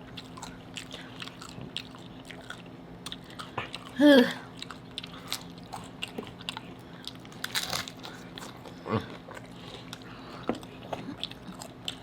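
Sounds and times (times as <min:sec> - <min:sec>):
chewing crunchy tacos: 0:00.0 - 0:12.0.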